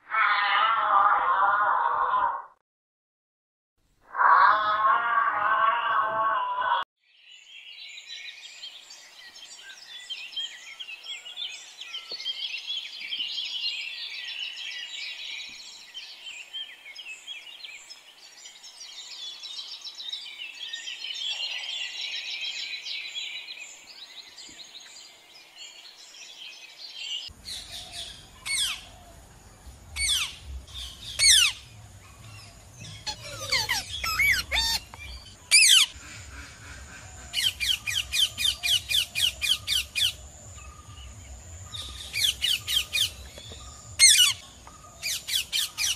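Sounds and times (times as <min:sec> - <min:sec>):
small birds chirping: 0:07.1 - 0:45.9
macaw squawking: 0:31.2 - 0:31.6, 0:32.8 - 0:40.2, 0:44.0 - 0:44.4.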